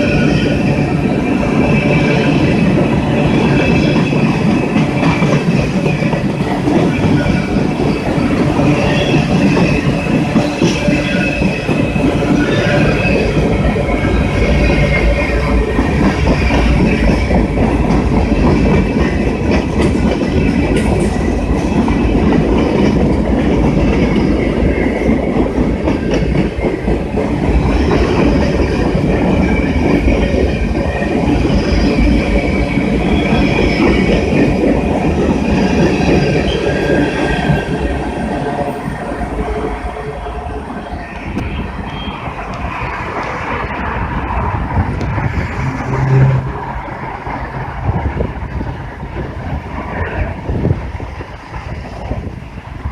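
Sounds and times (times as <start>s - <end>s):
high wheel squeal: 0.0s - 17.9s, 35.5s - 43.8s
train wheels rumbling on rail: 0.0s - 52.9s.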